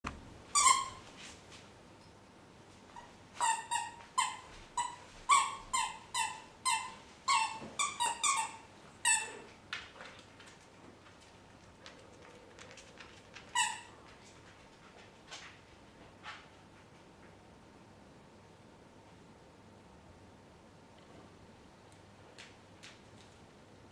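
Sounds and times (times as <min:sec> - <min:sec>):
dog yipping: 0:00.6 - 0:01.0, 0:03.0 - 0:09.4.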